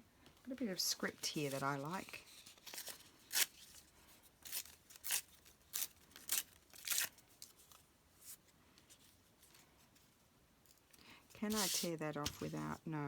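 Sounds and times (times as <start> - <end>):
paper rustling and crackling: 1.0 - 10.0, 11.4 - 12.8.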